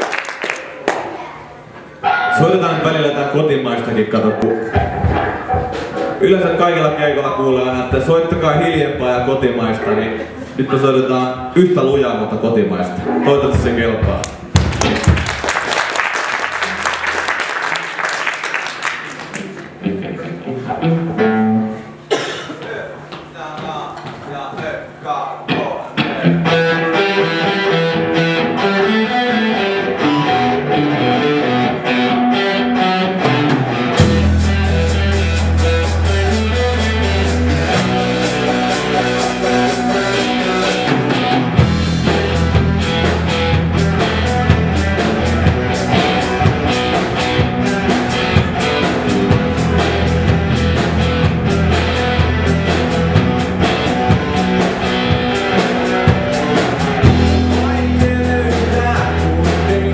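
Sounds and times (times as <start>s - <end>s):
guitar riff: 1.6s - 3.0s, 4.1s - 6.7s, 12.9s - 13.8s, 19.2s - 22.1s, 25.5s - 59.9s
live rock band playing: 1.9s - 2.9s, 4.3s - 7.0s, 18.6s - 22.2s, 25.9s - 59.9s
bass guitar: 4.2s - 10.6s, 13.0s - 15.5s, 19.2s - 22.1s, 25.5s - 59.9s
drum kit: 4.6s - 6.8s, 13.6s - 15.8s, 32.7s - 59.9s.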